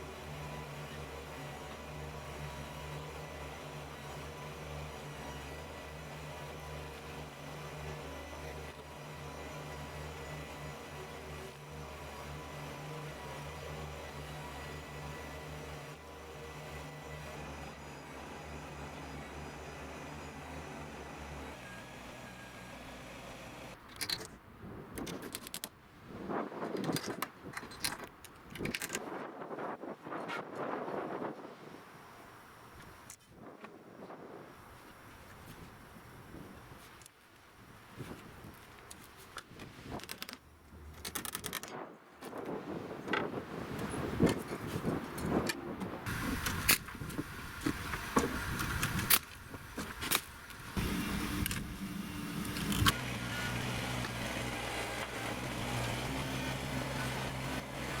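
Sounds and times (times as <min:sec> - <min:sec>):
tractor diesel engine running: 0:43.8 - 0:58.0.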